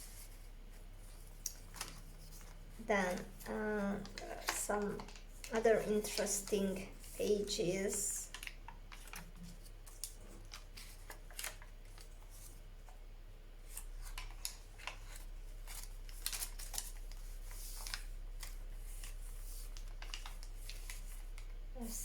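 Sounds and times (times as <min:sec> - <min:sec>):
low steady hum: 0:00.0 - 0:22.0
paper pages rustling: 0:01.0 - 0:13.0, 0:13.7 - 0:22.0.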